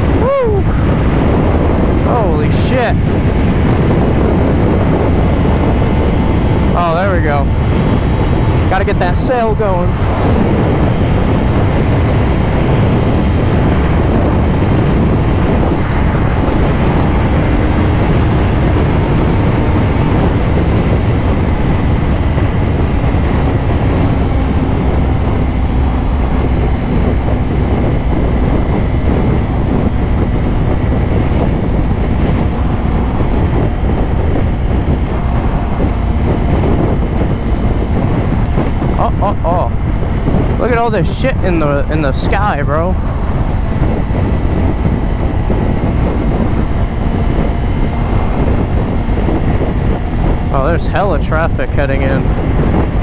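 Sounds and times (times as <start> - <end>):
heavy wind on microphone: 0.0 - 53.0
motorcycle engine droning: 0.0 - 53.0.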